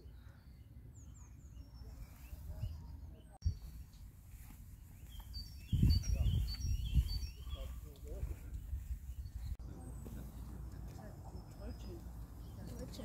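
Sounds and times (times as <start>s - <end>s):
small birds chirping: 0.0s - 13.0s
wind rumble on microphone: 2.0s - 9.6s.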